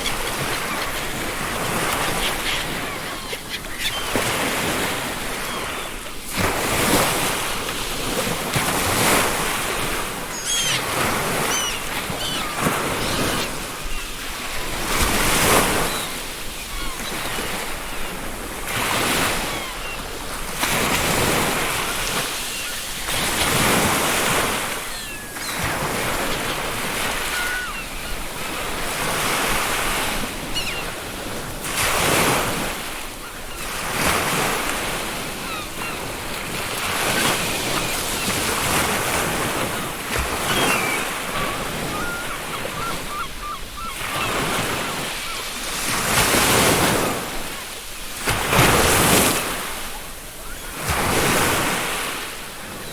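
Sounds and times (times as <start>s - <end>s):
faint seagull calls: 0.0s - 6.2s, 9.8s - 20.3s, 21.2s - 28.8s, 30.4s - 31.0s, 35.2s - 45.5s, 49.7s - 51.3s
ocean surf breaking on a beach: 0.0s - 52.9s.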